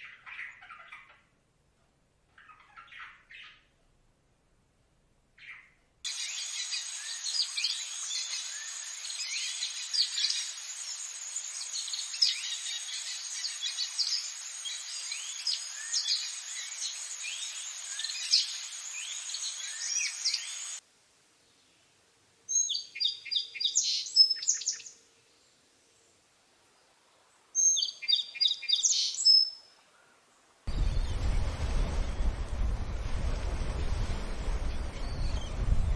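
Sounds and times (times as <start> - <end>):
birds chirping: 5.4 - 20.8, 27.6 - 32.2, 34.1 - 35.9
rapid high birdsong: 5.4 - 20.8, 34.1 - 35.9
steady hiss: 6.1 - 22.6, 30.3 - 35.9.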